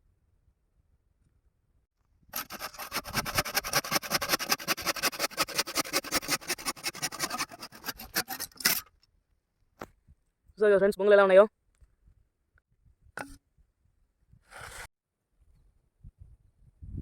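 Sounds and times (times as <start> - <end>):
saw rasping through bamboo: 2.3 - 8.9.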